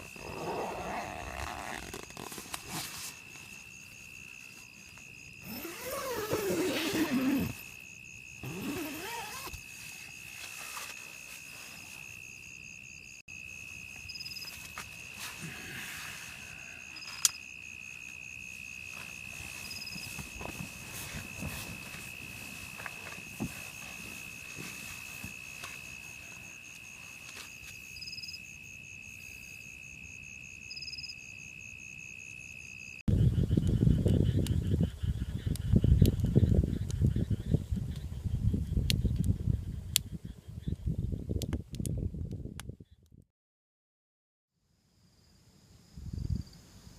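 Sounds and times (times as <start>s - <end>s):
wavering insect call: 0.0s - 38.8s
insect rapid chirps: 0.0s - 40.8s
insect high-pitched trill: 3.1s - 37.5s.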